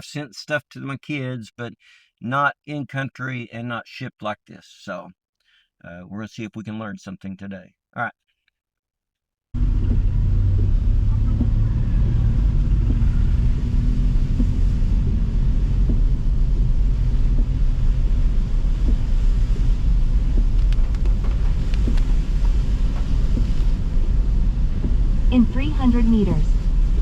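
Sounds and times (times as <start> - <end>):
car engine and road noise: 9.6 - 27.0.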